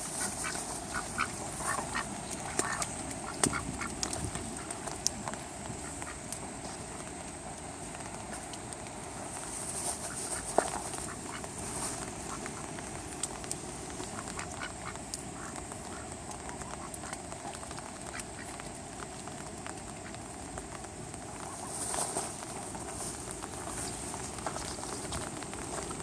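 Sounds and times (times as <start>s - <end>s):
ducks quacking: 0.0s - 8.6s, 9.5s - 12.8s, 13.9s - 18.6s
rain hiss: 0.0s - 26.0s.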